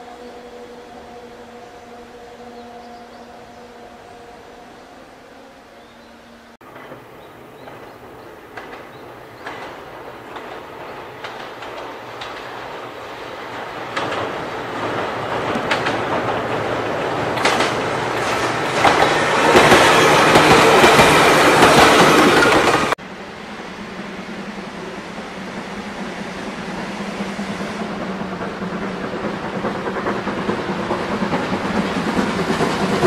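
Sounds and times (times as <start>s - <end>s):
electric train on steel bridge: 0.0s - 33.0s
wheels clacking over rail joints: 6.6s - 23.0s.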